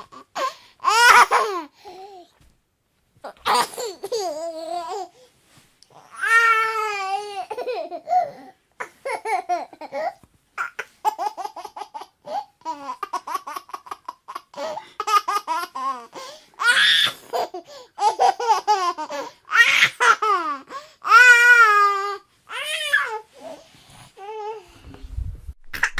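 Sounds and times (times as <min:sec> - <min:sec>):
baby laughing: 0:03.3 - 0:05.1, 0:06.9 - 0:20.6.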